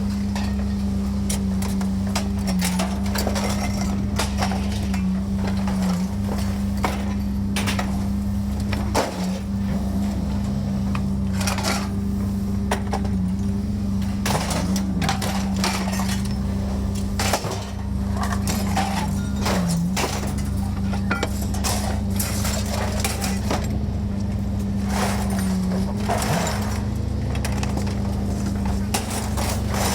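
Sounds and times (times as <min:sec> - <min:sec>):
low mechanical hum: 0:00.0 - 0:29.9
sharp clanks and knocks: 0:14.1 - 0:23.8.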